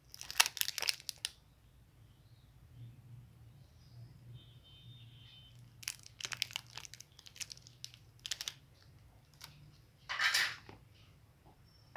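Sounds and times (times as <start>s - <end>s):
candy wrapper crinkling: 0.0s - 1.4s, 5.5s - 9.6s.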